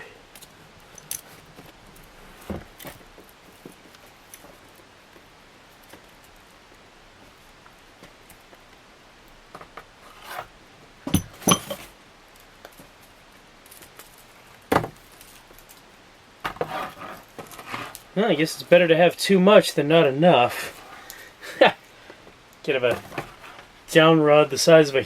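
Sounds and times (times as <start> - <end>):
faint rustles and clicks: 0.0 - 10.6, 11.3 - 19.0, 19.6 - 24.1
rattling clatter of parts: 11.1 - 12.0, 22.9 - 23.7.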